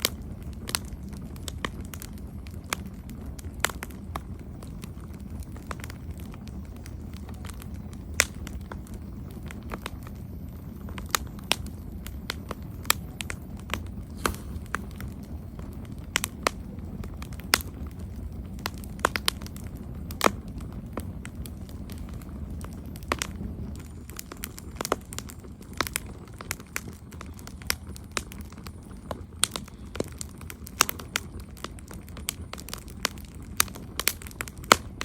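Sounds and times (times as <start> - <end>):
campfire burning and crackling: 0.0 - 35.0.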